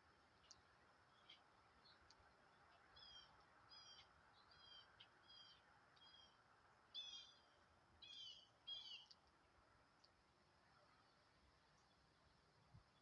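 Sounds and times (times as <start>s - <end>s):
bird chirping: 0.4s - 6.4s, 7.0s - 9.2s.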